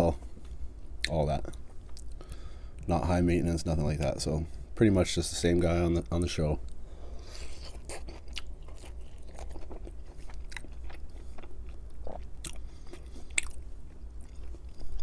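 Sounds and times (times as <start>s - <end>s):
low steady hum: 0.0s - 15.0s
chewing with wet mouth clicks: 7.6s - 15.0s.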